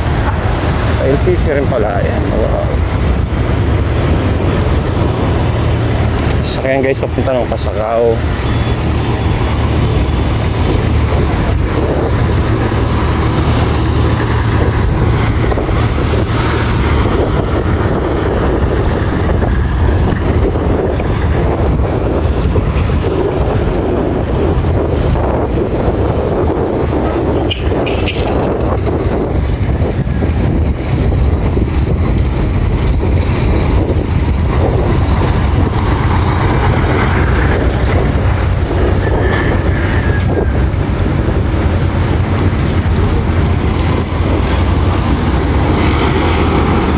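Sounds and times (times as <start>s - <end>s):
road noise: 0.0s - 46.9s
vehicle engine rumble: 0.0s - 46.9s.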